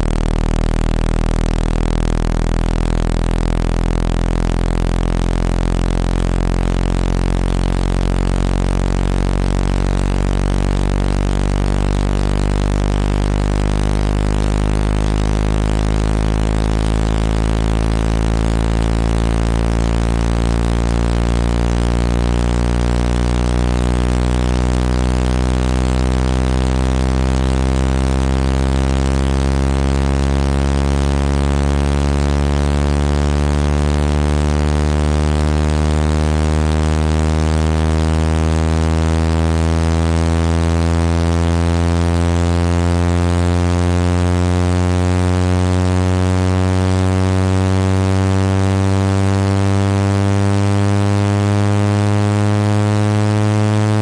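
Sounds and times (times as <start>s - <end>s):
low buzzing tone rising in pitch: 0.0s - 54.0s.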